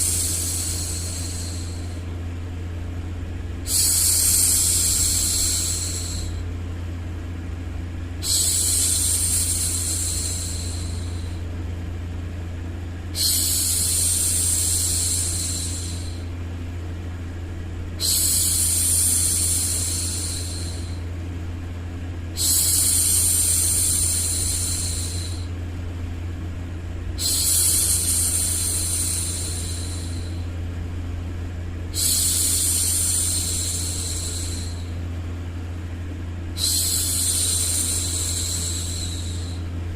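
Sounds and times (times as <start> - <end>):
low white-noise hum: 0.0 - 39.9
woman shushing: 8.2 - 11.4, 36.6 - 39.7.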